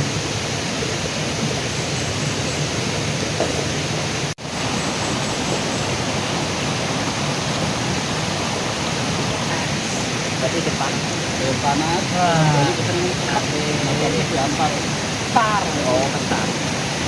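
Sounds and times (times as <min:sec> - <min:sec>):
river flowing: 0:00.0 - 0:17.0.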